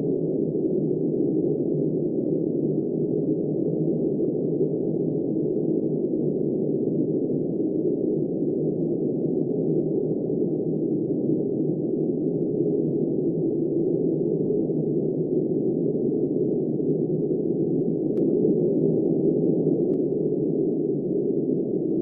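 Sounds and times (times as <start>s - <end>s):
faint tick: 18.1s - 18.4s.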